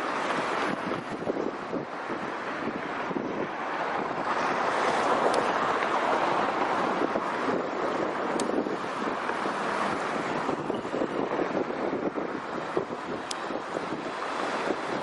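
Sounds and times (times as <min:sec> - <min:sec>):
truck passing: 0:00.0 - 0:15.0
wind on microphone: 0:00.0 - 0:15.0.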